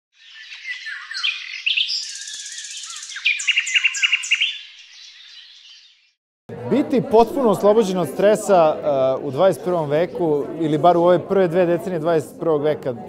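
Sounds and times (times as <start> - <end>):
birdsong chirps and trills: 0.1 - 6.2.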